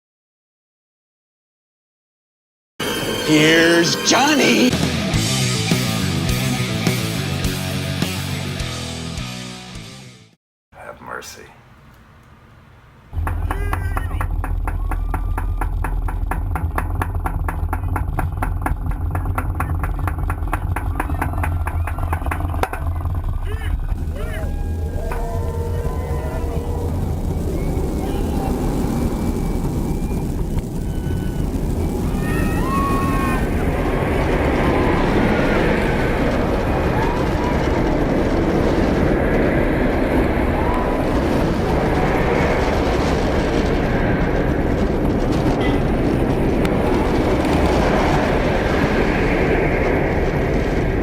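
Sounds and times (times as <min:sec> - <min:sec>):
steady rumbling: 0:02.8 - 0:09.1, 0:12.9 - 0:51.0
engine idling with knocking: 0:13.2 - 0:24.3.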